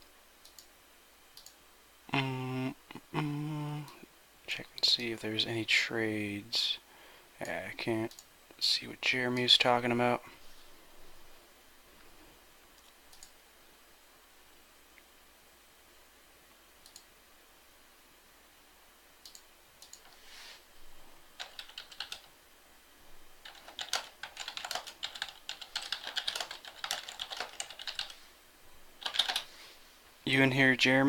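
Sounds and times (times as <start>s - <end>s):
keyboard typing: 19.2s - 20.2s, 21.4s - 22.3s, 23.4s - 28.2s, 29.0s - 29.5s.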